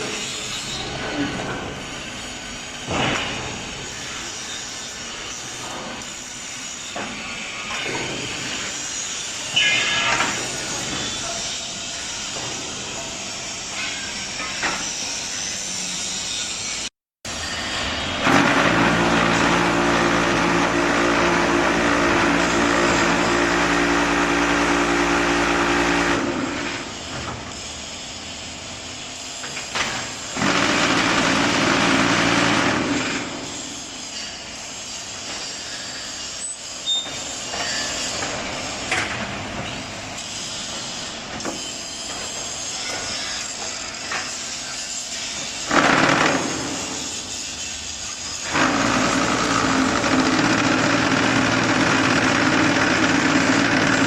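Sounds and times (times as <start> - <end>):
machine noise: 29.4 - 34.4.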